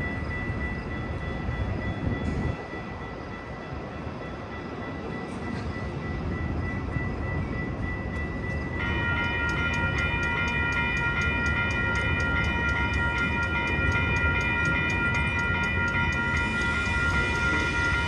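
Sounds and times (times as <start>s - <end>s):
train rumbling past: 0.0s - 18.0s
high-pitched crossing bell ringing: 6.0s - 18.0s.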